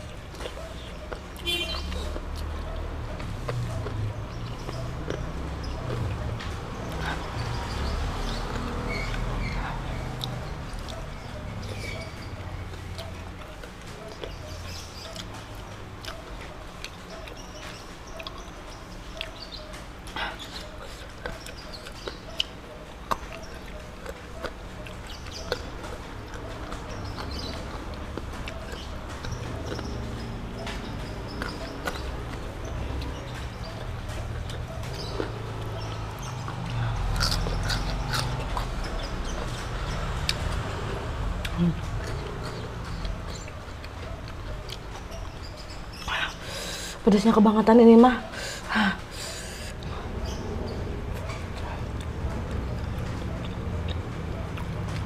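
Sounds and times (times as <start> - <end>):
chewing with wet mouth clicks: 0.0 - 7.9, 8.5 - 47.0, 49.1 - 55.0
fingers picking through food: 20.1 - 40.8.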